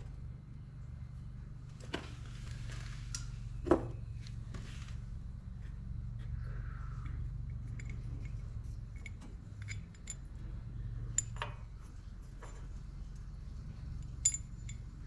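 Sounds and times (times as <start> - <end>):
steady low hum: 0.0 - 15.0
hand tools clinking on metal: 14.0 - 15.0.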